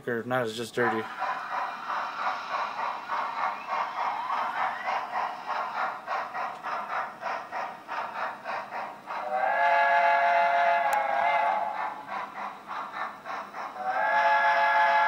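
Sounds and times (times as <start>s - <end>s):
steam exhaust chuffs: 0.4s - 15.0s
steam whistle: 9.2s - 11.7s, 13.8s - 15.0s.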